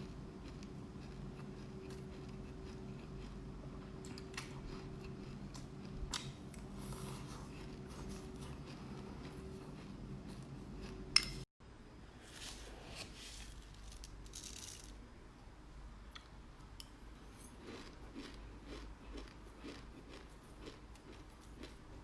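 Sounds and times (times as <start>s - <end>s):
chewing and crunching seeds: 0.0s - 11.1s, 17.5s - 22.0s.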